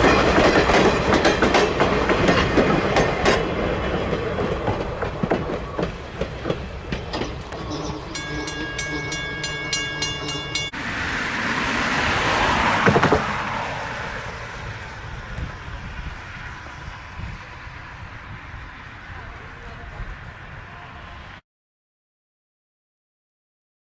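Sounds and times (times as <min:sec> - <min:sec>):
train wheels clicking over rail joints: 0:00.0 - 0:20.6
rushing rumble of passing train: 0:00.0 - 0:21.4
train warning signal chord: 0:06.9 - 0:10.9.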